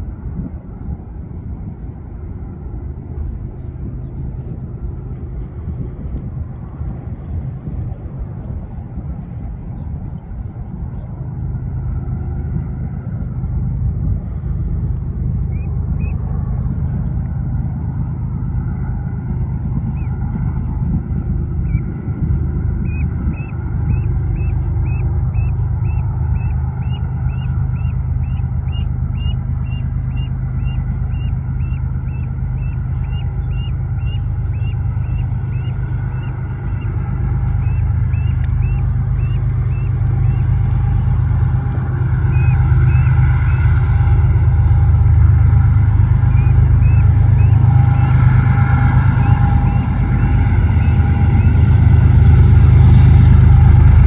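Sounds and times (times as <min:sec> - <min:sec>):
diesel locomotive rumble: 0:00.0 - 0:54.0
bird chirping: 0:15.5 - 0:16.2, 0:22.8 - 0:36.9, 0:37.6 - 0:40.5, 0:42.3 - 0:43.8, 0:46.4 - 0:48.1, 0:49.2 - 0:51.6.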